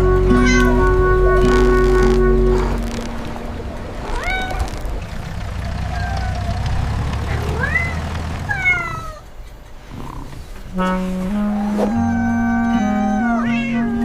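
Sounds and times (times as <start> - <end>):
steady low rumble: 0.0 - 8.6
cat meowing: 4.0 - 4.8, 7.4 - 9.2, 11.5 - 14.0.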